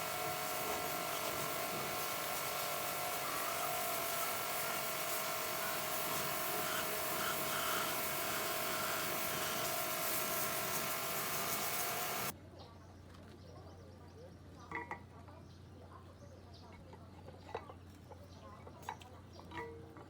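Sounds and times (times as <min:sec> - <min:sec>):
power tool whining: 0:00.0 - 0:12.3.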